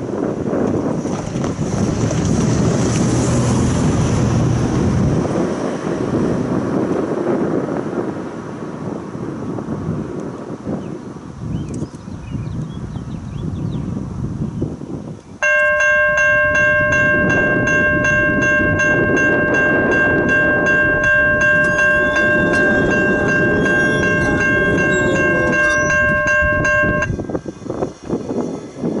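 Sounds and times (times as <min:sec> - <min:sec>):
low rumble of train: 0:00.0 - 0:11.8, 0:14.0 - 0:29.0
locomotive air horn blast: 0:15.7 - 0:27.2.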